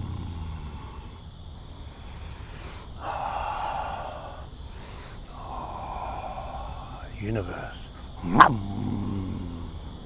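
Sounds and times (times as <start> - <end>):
person breathing forcefully: 1.8 - 7.1.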